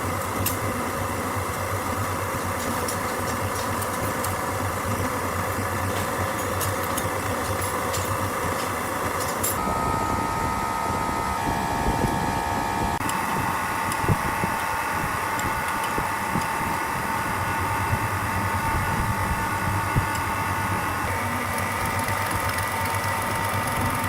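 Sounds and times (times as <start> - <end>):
machinery whining: 0.0 - 24.0.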